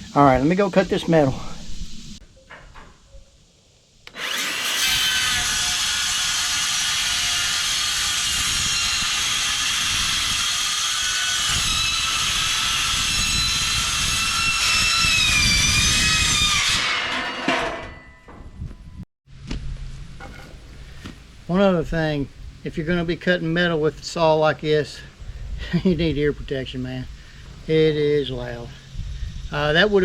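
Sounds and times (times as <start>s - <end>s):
saw winding down: 4.1s - 17.8s
circular saw cutting metal: 4.1s - 18.4s.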